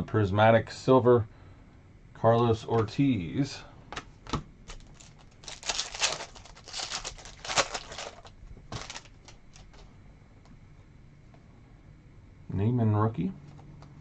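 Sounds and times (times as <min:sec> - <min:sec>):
trading cards rustling: 0:04.7 - 0:09.8.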